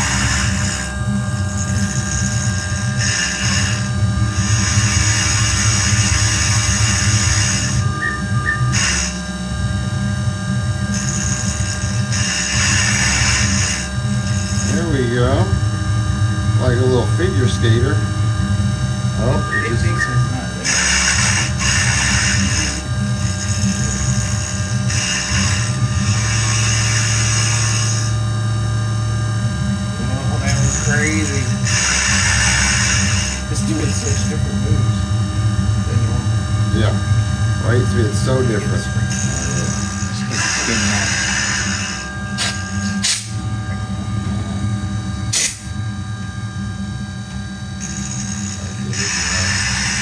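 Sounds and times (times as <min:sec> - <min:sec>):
cutter hissing into wood: 0:00.0 - 0:28.7, 0:29.8 - 0:43.9, 0:44.5 - 0:46.0, 0:47.2 - 0:50.0
mill spindle and motors humming: 0:00.0 - 0:50.0.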